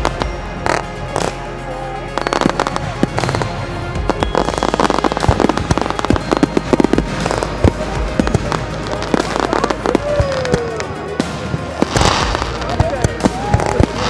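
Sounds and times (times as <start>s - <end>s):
music playing: 0.0s - 14.0s
fireworks bangs and crackles: 2.2s - 14.0s.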